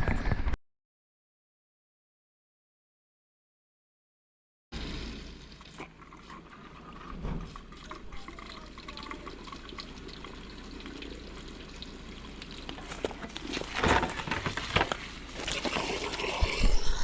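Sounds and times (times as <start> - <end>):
water pouring and splashing: 4.8 - 17.0.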